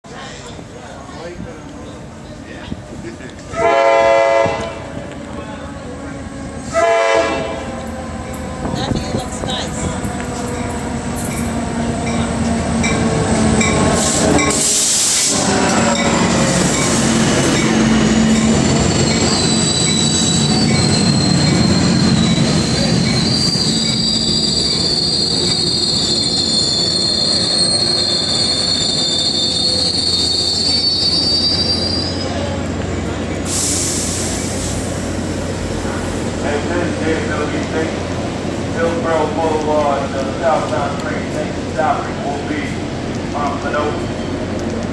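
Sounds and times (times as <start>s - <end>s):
train rumbling: 0.0s - 44.9s
train wheels squealing on rails: 7.8s - 32.7s, 33.3s - 36.1s
burst of hiss: 14.0s - 15.4s, 33.4s - 35.4s.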